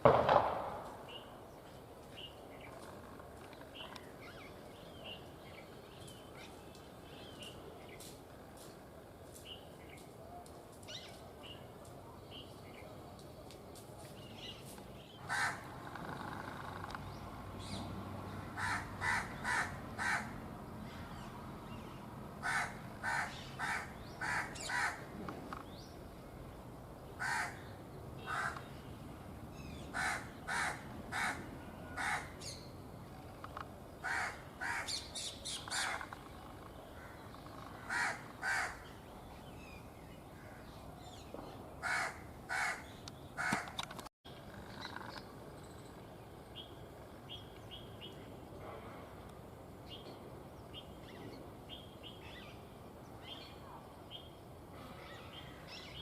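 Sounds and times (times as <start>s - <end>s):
crow cawing: 15.2s - 15.7s, 18.5s - 20.4s, 22.4s - 25.1s, 27.2s - 27.6s, 28.3s - 28.6s, 29.9s - 32.3s, 34.0s - 34.9s, 37.0s - 38.8s, 41.8s - 42.8s.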